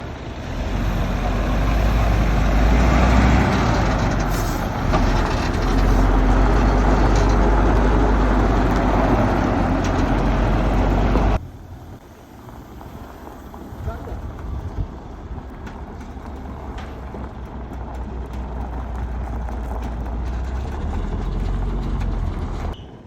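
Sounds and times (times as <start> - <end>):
machinery running with deep rumble: 0.0 - 12.6.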